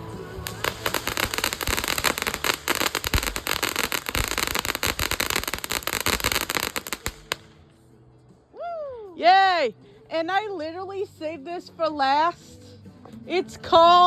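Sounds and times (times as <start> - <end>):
firework crackling: 0.0 - 7.6.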